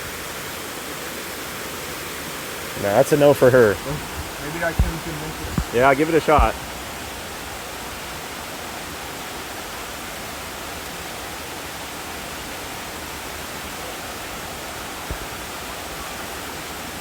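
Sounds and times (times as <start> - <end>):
waterfall rushing: 0.7 - 17.0
low thump: 3.8 - 6.7.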